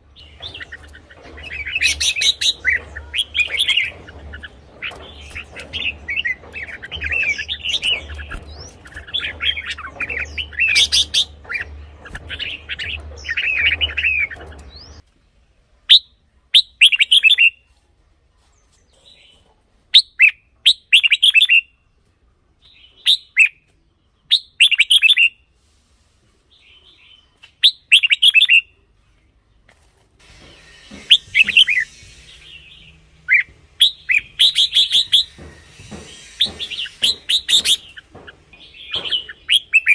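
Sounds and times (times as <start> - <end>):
birds singing warbling phrases: 0.0 - 15.0, 26.7 - 28.8, 30.9 - 39.9.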